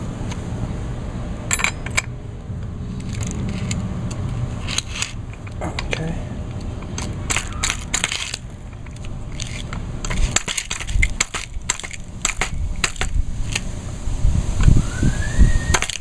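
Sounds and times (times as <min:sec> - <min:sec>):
wrench clicking and scraping metal: 0:01.5 - 0:02.2, 0:02.9 - 0:13.7.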